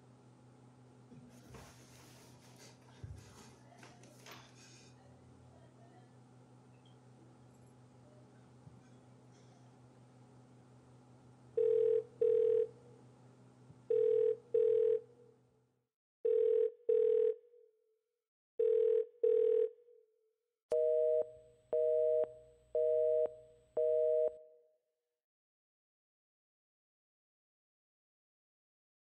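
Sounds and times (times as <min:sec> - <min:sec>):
telephone ringback tone: 0:11.6 - 0:12.7, 0:13.9 - 0:15.0, 0:18.6 - 0:19.7, 0:20.8 - 0:24.4.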